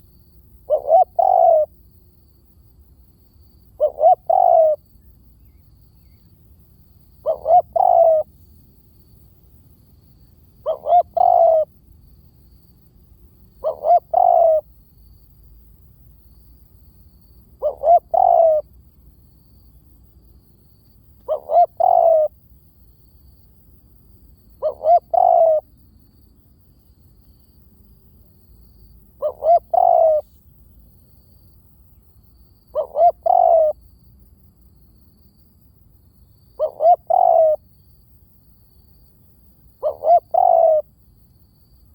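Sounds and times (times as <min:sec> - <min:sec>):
dove cooing: 0:00.6 - 0:01.8, 0:03.7 - 0:04.8, 0:07.2 - 0:08.3, 0:10.6 - 0:11.8, 0:13.6 - 0:14.7, 0:17.6 - 0:18.7, 0:21.2 - 0:22.4, 0:24.6 - 0:25.7, 0:29.2 - 0:30.3, 0:32.7 - 0:33.8, 0:36.6 - 0:37.6, 0:39.8 - 0:40.9.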